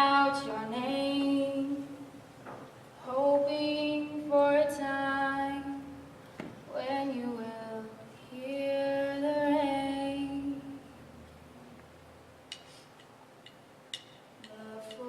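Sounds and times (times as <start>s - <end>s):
young woman singing: 0.0s - 2.1s, 3.0s - 6.0s, 6.7s - 10.8s, 14.5s - 15.0s.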